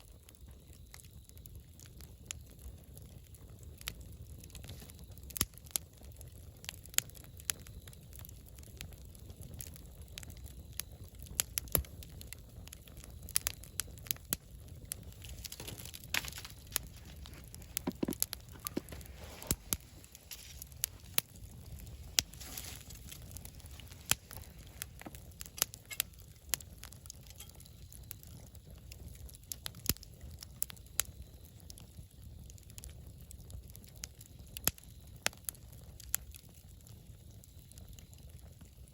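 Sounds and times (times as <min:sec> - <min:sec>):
campfire crackling and popping: 0:00.0 - 0:38.9
fire hissing: 0:00.0 - 0:38.9
low rumble of flame: 0:00.0 - 0:38.9.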